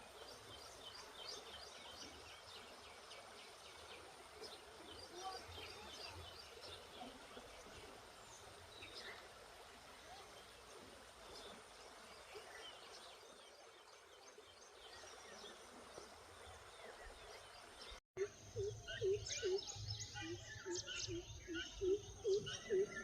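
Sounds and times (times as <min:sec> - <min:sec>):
steady outdoor hiss: 0:00.0 - 0:23.0
faint bird chirps: 0:18.2 - 0:23.0.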